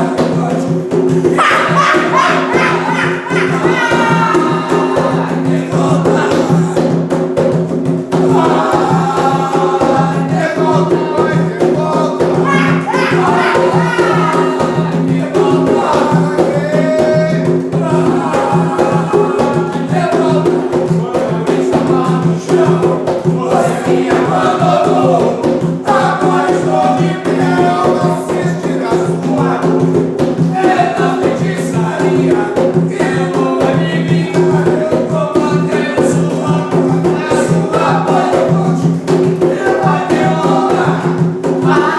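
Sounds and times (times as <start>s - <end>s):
group of voices chanting: 0.0s - 7.0s, 8.2s - 17.2s, 17.8s - 20.7s, 21.3s - 29.5s, 39.4s - 41.9s
steady percussion beat: 0.0s - 41.9s.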